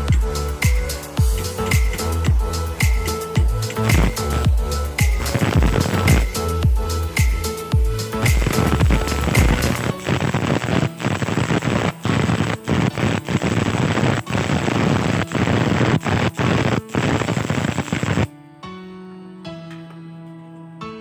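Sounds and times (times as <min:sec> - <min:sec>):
welding arc crackling: 0:00.0 - 0:18.3
soft background music: 0:00.0 - 0:21.0.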